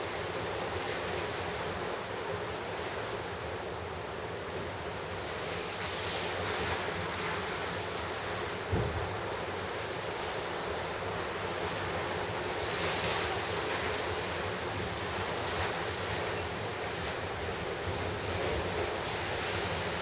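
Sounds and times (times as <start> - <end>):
ocean surf crashing: 0.0 - 20.0.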